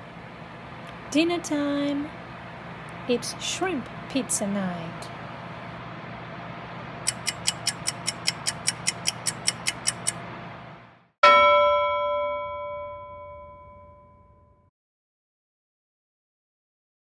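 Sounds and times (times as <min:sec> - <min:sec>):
cooking appliance hum: 0:00.0 - 0:11.1
mechanical timer ticking: 0:07.1 - 0:10.2
timer bell ding: 0:11.2 - 0:14.6.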